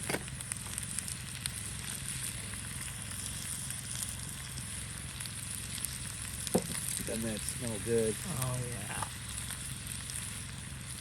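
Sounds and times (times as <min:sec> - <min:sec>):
small pops: 0:00.0 - 0:02.3, 0:05.8 - 0:07.2
vegetables sizzling over campfire: 0:00.0 - 0:11.0.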